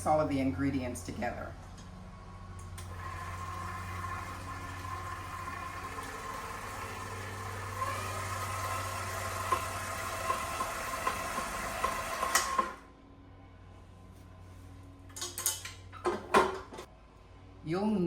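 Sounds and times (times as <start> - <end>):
stand mixer motor hum: 2.8 - 12.8.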